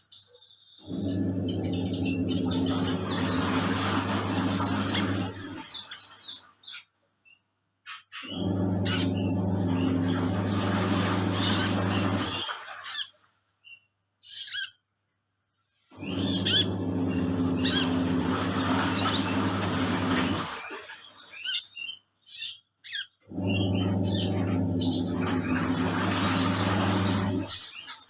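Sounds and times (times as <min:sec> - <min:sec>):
lovebird chirping and squawking: 0:00.0 - 0:09.4, 0:13.7 - 0:14.8, 0:16.0 - 0:18.2, 0:21.4 - 0:25.4
washing machine motor humming: 0:00.8 - 0:06.4, 0:08.2 - 0:12.8, 0:15.9 - 0:21.1, 0:23.3 - 0:28.0.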